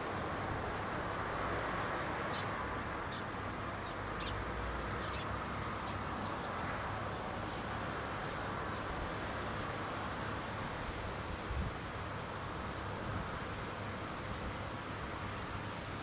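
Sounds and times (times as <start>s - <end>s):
wind noise: 10.9s - 11.9s.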